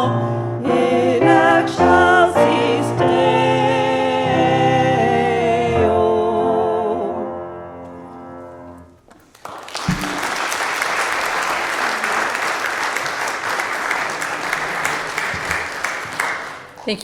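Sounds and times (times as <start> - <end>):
women singing held chord: 0.0 - 7.4
congregation applause: 9.1 - 17.0.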